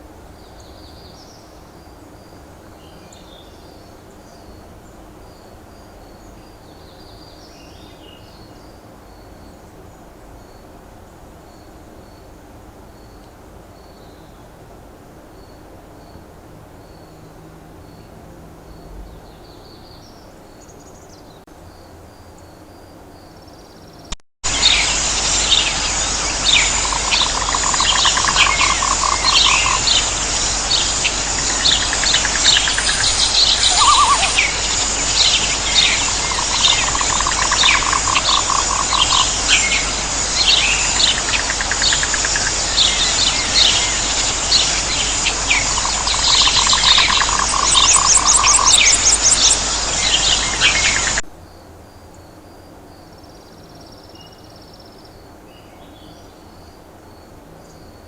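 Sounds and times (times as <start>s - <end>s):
insect hiss: 0.0s - 58.0s
bird chirps: 23.8s - 51.2s
bird trills: 24.5s - 51.2s
faint bird calls: 24.5s - 51.2s.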